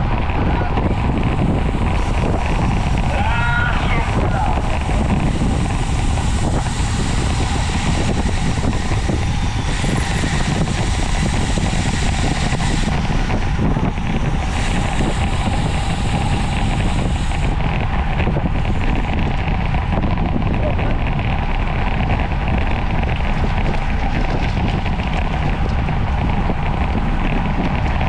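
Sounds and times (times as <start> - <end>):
low road rumble: 0.0 - 28.0
wind rushing over microphone: 0.0 - 28.0.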